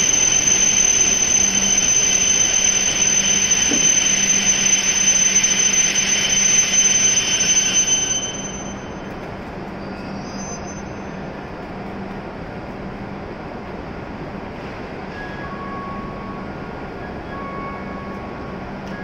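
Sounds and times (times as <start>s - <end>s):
high-pitched brake squeal: 0.0s - 9.1s, 9.8s - 11.4s, 15.0s - 18.3s
standing train hum: 0.0s - 19.0s
train rolling: 0.0s - 19.0s.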